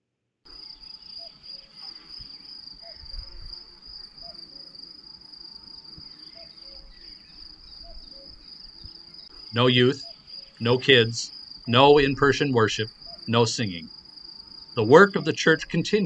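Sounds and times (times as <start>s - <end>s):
lower chirp: 6.0s - 13.9s
crickets high trill: 6.2s - 16.0s.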